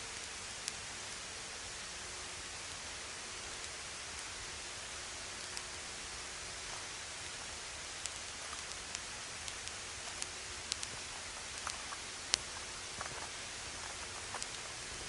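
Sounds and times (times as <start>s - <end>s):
campfire crackling and popping: 3.6s - 15.0s.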